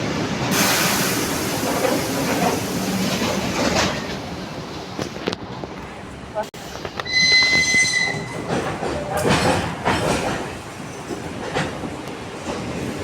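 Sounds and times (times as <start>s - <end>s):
train wheels knocking over rail joints: 8.0s - 12.7s.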